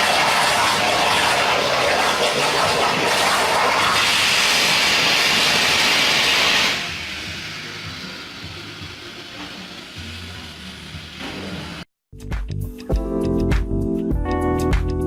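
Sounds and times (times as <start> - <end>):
plasma torch hissing: 0.0 - 11.9.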